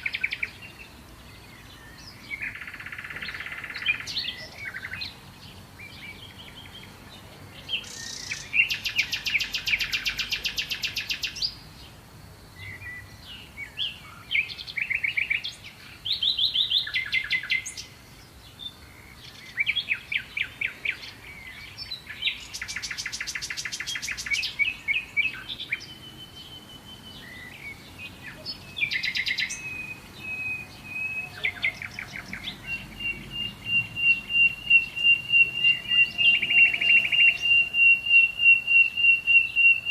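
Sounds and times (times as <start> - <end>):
bird chirps: 0.0 - 39.9
songbird trills: 0.0 - 39.9
steady high bird note: 33.5 - 39.2.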